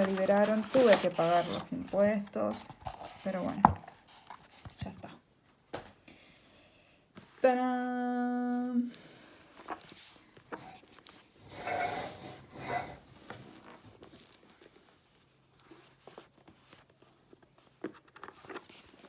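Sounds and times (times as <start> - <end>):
hands rubbing card box wrapping: 0.0 - 4.6
small clicks and crinkles: 8.9 - 11.3, 13.2 - 19.0.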